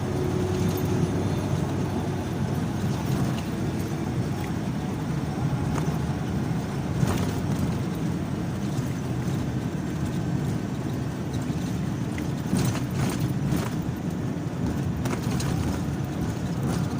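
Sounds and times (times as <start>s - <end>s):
car engine and tyre rumble: 0.0s - 16.9s
knocks and rattles: 6.9s - 16.9s.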